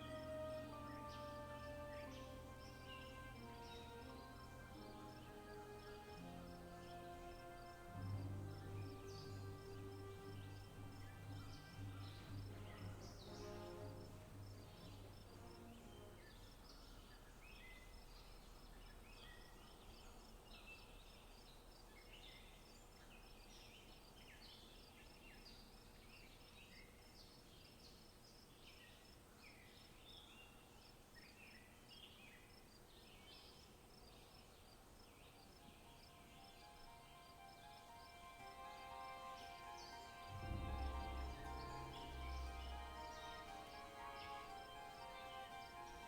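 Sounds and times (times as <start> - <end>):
music: 0.0 - 16.7, 35.6 - 46.0
birds chirping: 0.0 - 24.7, 29.8 - 46.0.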